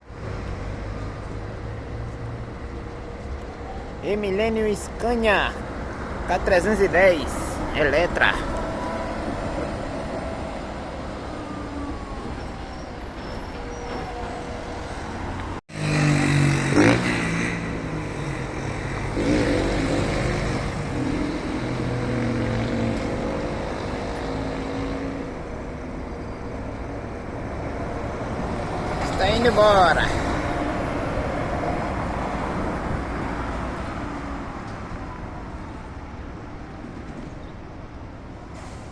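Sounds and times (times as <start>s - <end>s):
street traffic hum: 0.0s - 38.9s
electric bus pulling away: 8.4s - 38.9s
vehicle droning close by: 14.4s - 35.2s.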